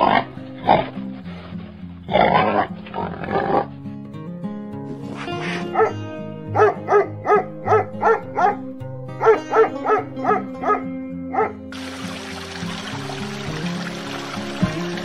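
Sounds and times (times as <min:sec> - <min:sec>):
background music: 0:00.0 - 0:15.0
dog barking: 0:02.1 - 0:03.7, 0:05.0 - 0:11.7.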